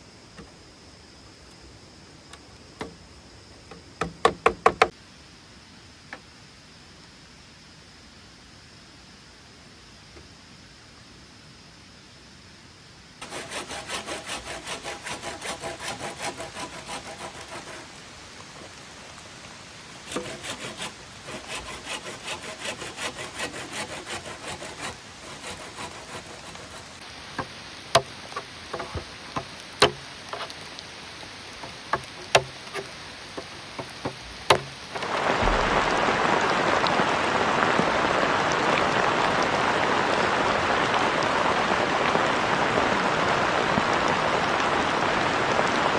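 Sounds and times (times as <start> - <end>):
sharp knocks: 3.7 - 4.9, 28.7 - 30.4, 31.6 - 34.8, 35.4 - 36.2
hand saw cutting bamboo: 13.2 - 18.0, 20.0 - 27.0, 28.0 - 30.6, 31.6 - 34.8
heavy rain: 13.2 - 45.9.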